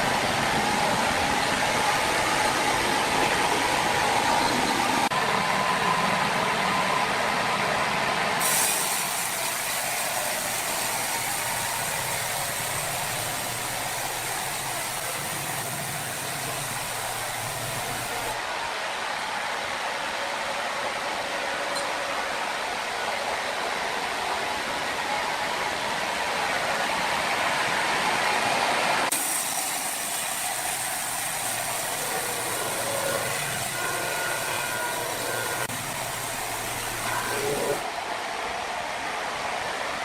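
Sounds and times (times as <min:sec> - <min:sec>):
sawmill machinery running: 0:00.0 - 0:39.9
faint machine whine: 0:30.7 - 0:38.2.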